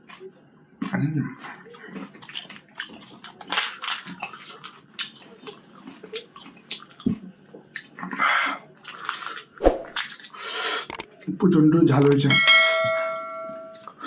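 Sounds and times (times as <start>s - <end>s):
wet chewing and slurping: 0.0s - 11.0s
crunching of crisp shells: 1.8s - 8.0s.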